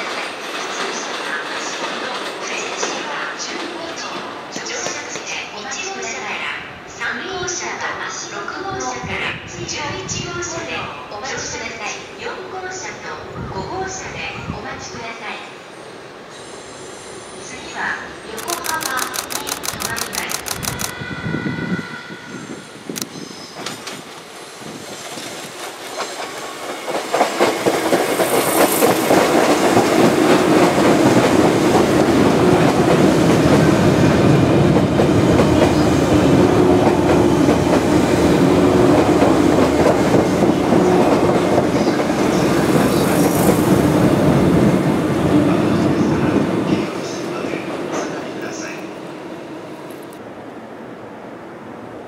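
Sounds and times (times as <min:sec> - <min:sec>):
electric train rolling by: 0:15.7 - 0:52.0.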